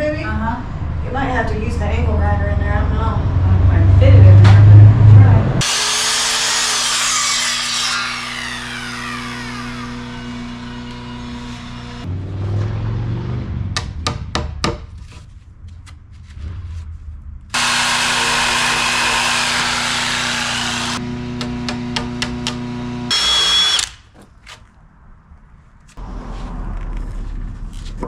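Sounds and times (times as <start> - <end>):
power saw cutting wood: 5.6 - 12.1, 17.6 - 24.0.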